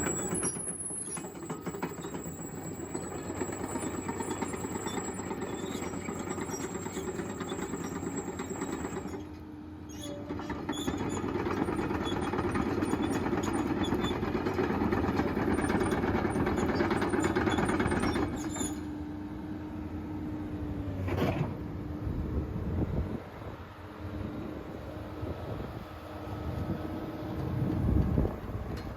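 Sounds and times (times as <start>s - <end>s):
excavator diesel engine running: 0.0s - 22.1s.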